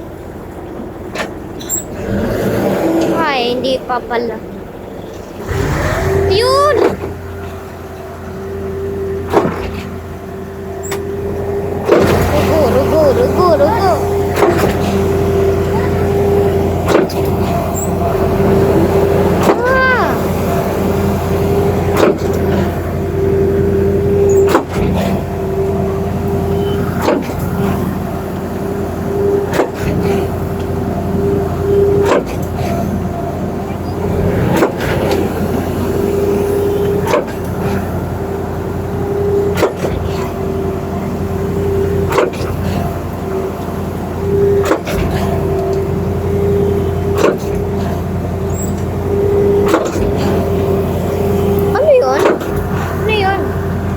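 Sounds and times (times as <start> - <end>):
concrete pump truck running: 0.0 - 53.9.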